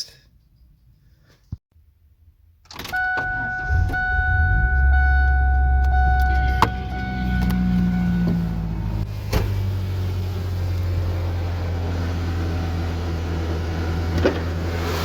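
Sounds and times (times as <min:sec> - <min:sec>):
pickup engine starting and idling: 0:02.7 - 0:15.0
steady high-pitched tone: 0:03.0 - 0:08.8.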